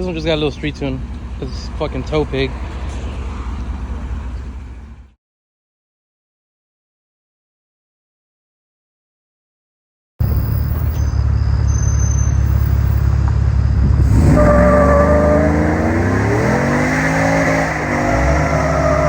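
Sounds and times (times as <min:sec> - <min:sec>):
truck engine rumbling and revving: 0:00.0 - 0:05.2, 0:10.2 - 0:19.0.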